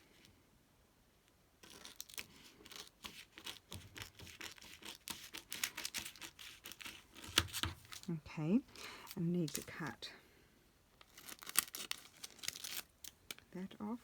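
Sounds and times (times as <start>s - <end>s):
paper crinkling and rustling: 1.6s - 8.1s, 8.7s - 10.0s, 11.0s - 13.5s.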